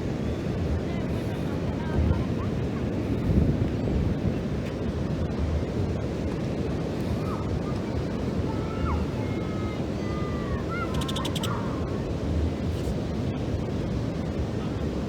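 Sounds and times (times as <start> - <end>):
ocean surf: 0.0 - 15.0
wind on microphone: 0.0 - 15.0
whistled bird calls: 10.7 - 11.6.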